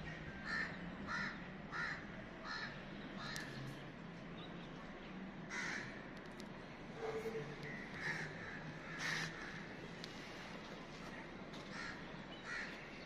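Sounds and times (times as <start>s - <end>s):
bird cawing: 0.1s - 3.6s, 5.5s - 6.0s, 7.7s - 9.7s, 11.7s - 12.9s.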